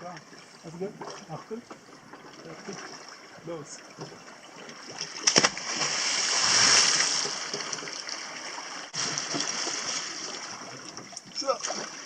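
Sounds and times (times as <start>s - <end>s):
churned water rushing: 0.0s - 12.0s
soft water noise: 0.0s - 12.0s
person splashing into water: 4.9s - 10.7s, 11.5s - 12.0s.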